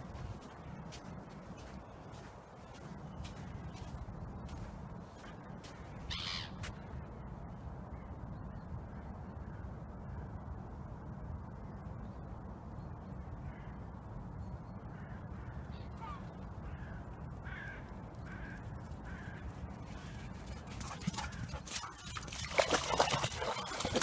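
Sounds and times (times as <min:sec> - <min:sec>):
steady low rumble: 0:00.0 - 0:24.0
faint bird calls: 0:05.2 - 0:06.9.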